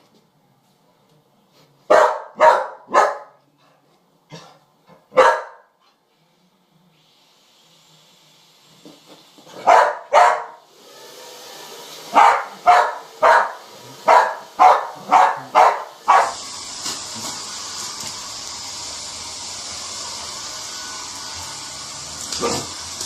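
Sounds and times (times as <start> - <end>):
dog barking: 1.9 - 3.4, 5.1 - 5.7, 9.6 - 10.6, 12.1 - 16.4
pet hair dryer hissing: 6.9 - 23.0.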